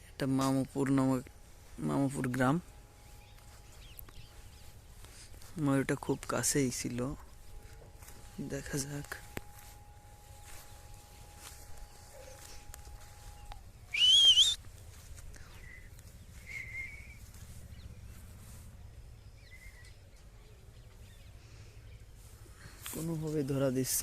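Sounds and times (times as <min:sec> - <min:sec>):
low outdoor background: 0:00.0 - 0:24.0
rising whistled call: 0:09.8 - 0:14.7, 0:15.6 - 0:17.4
faint short whistled notes: 0:13.3 - 0:14.6, 0:16.4 - 0:17.3.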